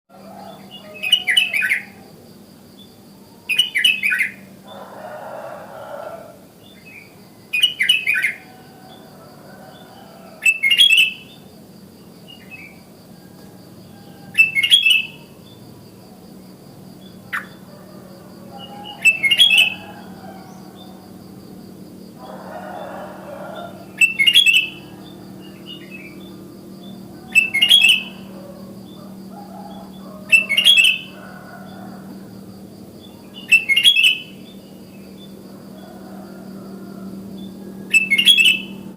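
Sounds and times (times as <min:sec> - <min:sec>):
faint high whine: 0:11.3 - 0:38.9
bulbul singing: 0:18.3 - 0:21.2, 0:23.2 - 0:35.4, 0:37.0 - 0:38.9.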